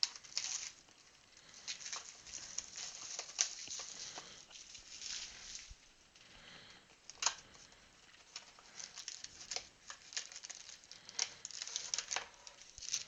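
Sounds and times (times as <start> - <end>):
card packs rustling and clicking: 1.4 - 5.7, 7.1 - 13.0.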